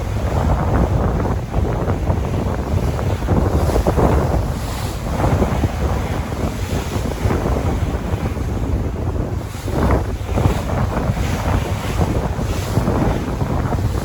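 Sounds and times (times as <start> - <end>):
sea waves washing on shore: 0.0 - 14.0
wind buffeting microphone: 0.0 - 14.0.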